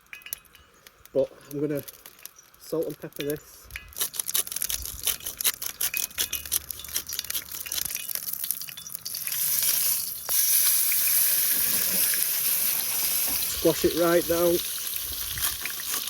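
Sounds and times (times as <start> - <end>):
seasoning clicking: 2.0 - 13.3
steak sizzling in a pan: 6.6 - 16.0.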